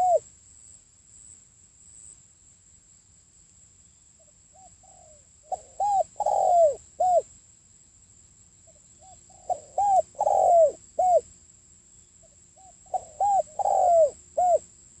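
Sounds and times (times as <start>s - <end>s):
dove cooing: 0.0s - 0.2s, 4.6s - 7.3s, 9.0s - 11.3s, 12.6s - 14.7s.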